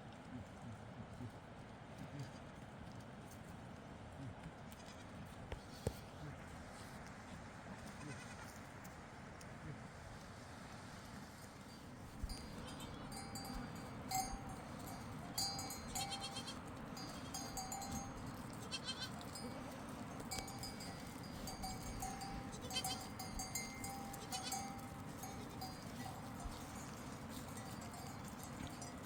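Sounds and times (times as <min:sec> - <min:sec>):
faint sheep bleat: 0:02.1 - 0:02.5, 0:07.8 - 0:08.6, 0:12.4 - 0:13.2, 0:15.8 - 0:17.6, 0:18.6 - 0:20.5, 0:22.4 - 0:23.4, 0:24.1 - 0:25.7
small bells jingling: 0:12.2 - 0:29.0.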